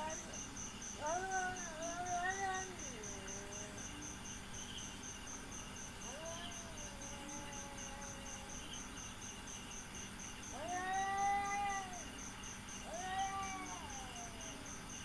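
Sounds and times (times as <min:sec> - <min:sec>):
cat yowling: 0:00.0 - 0:00.4, 0:01.0 - 0:03.6, 0:06.0 - 0:08.6, 0:10.5 - 0:12.2, 0:12.8 - 0:14.7
cricket chirping: 0:00.0 - 0:15.0.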